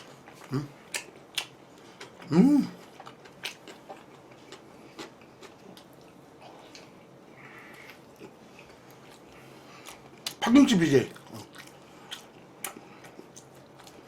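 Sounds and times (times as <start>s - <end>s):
person chewing food: 0.0s - 10.4s, 11.1s - 14.0s
person humming: 2.3s - 2.8s.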